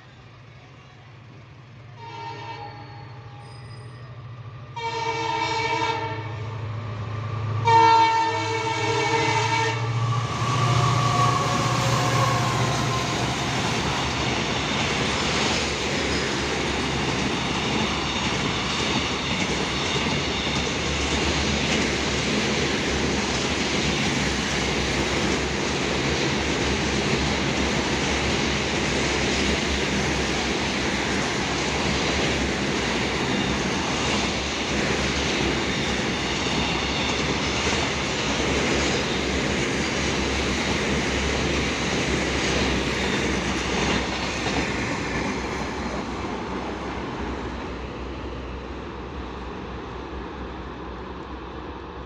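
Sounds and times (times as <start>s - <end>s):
locomotive horn blasts: 2.0s - 2.8s, 4.8s - 6.4s, 7.6s - 10.0s
wheels rumbling on rails: 8.4s - 52.0s.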